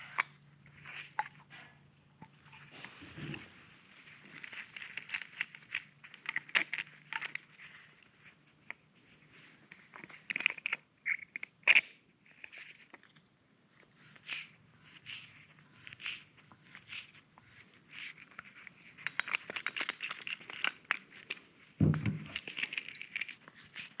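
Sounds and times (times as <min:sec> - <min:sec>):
metal parts scraping and rustling: 0:02.5 - 0:07.9, 0:22.2 - 0:24.0
sharp clicks and knocks: 0:21.8 - 0:23.4.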